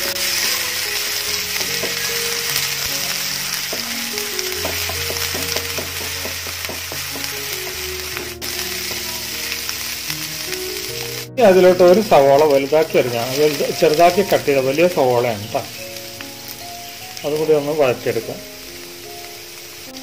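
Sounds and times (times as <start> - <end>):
paste sizzling in hot oil: 0.0 - 20.0
wooden spatula scraping and tapping pan: 3.7 - 9.2.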